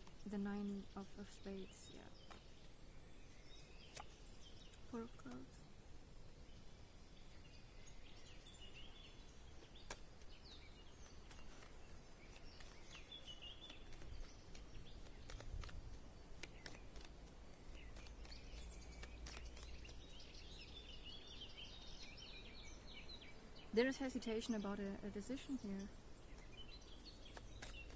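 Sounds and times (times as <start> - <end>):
faint songbirds chirping: 0.0 - 27.9
sharp clicks: 9.6 - 10.4, 11.0 - 20.2, 27.3 - 27.9.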